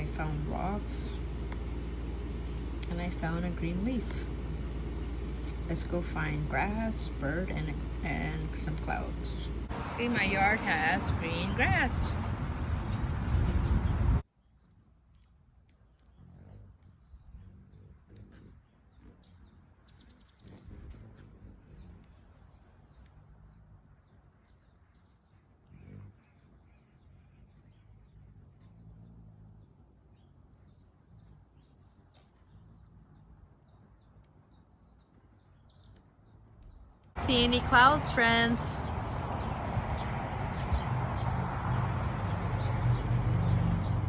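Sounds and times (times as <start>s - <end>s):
small bird chirping: 0.0s - 10.3s, 14.2s - 37.5s
low outdoor background hum: 0.0s - 44.0s.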